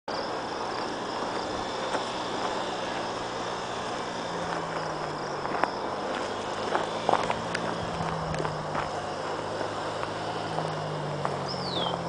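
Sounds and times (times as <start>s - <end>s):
small off-road engine running: 0.1s - 12.0s.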